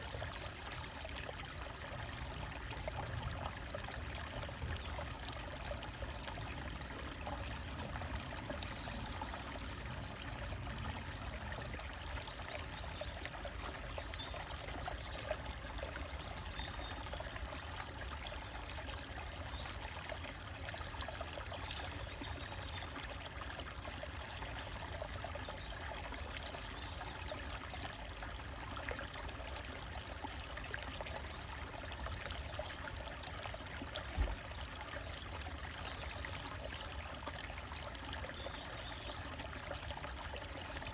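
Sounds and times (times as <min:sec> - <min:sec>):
stream splashing over rocks: 0:00.0 - 0:40.9.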